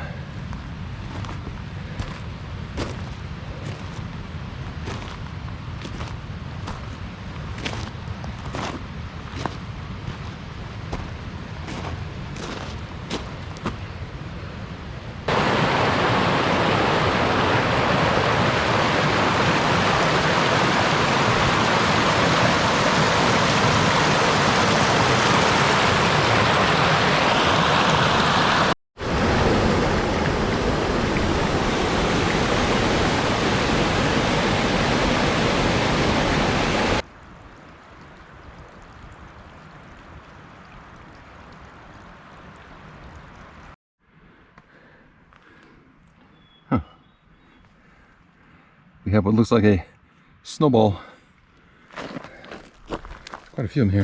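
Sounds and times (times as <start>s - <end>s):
waterfall roaring: 15.3s - 37.0s.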